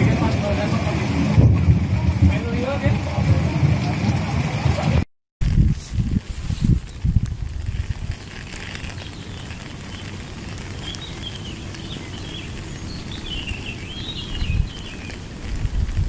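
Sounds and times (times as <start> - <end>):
constant low rumble: 0.0 - 16.0
rain falling on water: 0.0 - 16.0
bird twittering: 10.7 - 15.2.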